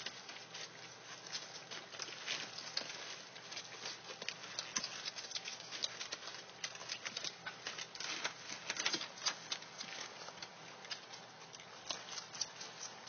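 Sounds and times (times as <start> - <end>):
puppies suckling wet clicks: 0.0 - 13.0.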